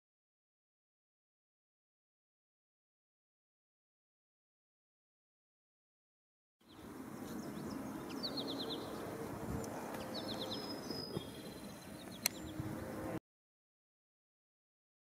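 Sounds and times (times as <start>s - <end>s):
songbird chirping: 6.6s - 13.2s
sharp click: 12.2s - 12.4s.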